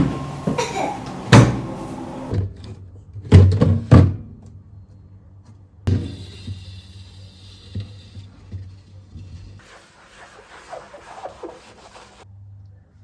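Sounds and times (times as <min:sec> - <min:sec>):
household knocks and thuds: 0:00.0 - 0:02.3.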